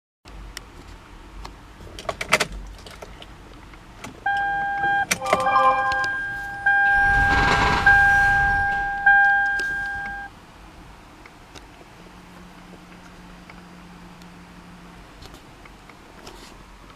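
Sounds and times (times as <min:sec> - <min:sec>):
electronic warning chime: 0:04.3 - 0:10.3.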